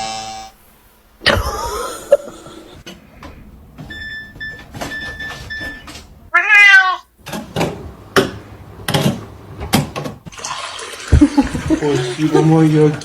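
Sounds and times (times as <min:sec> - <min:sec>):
cat meowing: 0:06.3 - 0:07.1.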